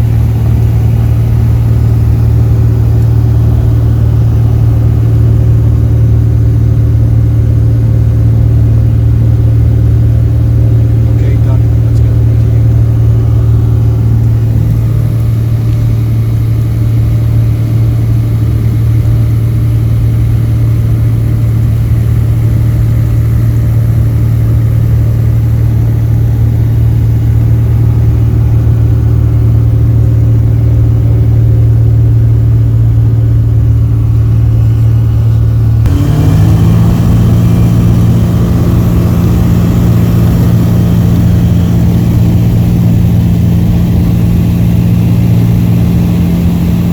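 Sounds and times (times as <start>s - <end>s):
propeller aircraft engine: 0.0s - 46.9s.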